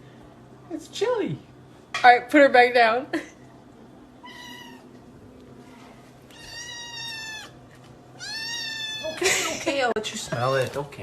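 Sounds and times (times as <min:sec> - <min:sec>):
cat meowing: 0:04.2 - 0:04.9, 0:06.3 - 0:07.6, 0:08.2 - 0:09.2.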